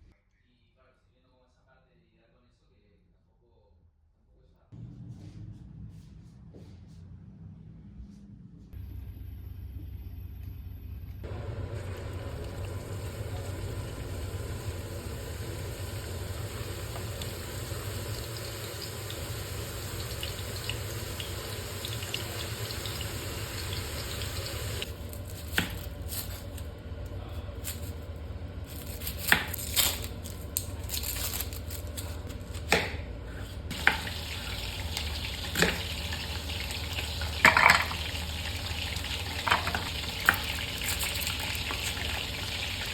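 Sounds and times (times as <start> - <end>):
water running from tap: 11.2 - 26.3, 33.7 - 42.9
utensils and dishes clinking: 33.7 - 42.9.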